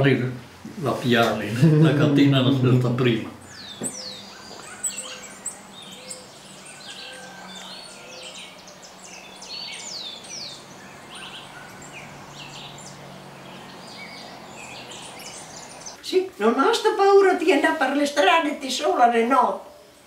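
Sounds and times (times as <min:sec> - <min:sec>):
birds chirping and calling: 0:03.4 - 0:16.0.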